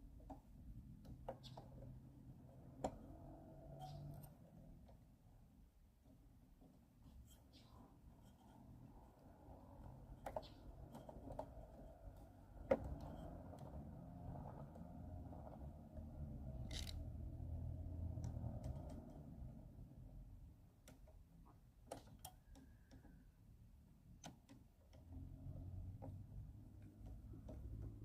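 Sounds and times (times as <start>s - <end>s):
clicks and taps of hand tools: 2.6s - 3.2s.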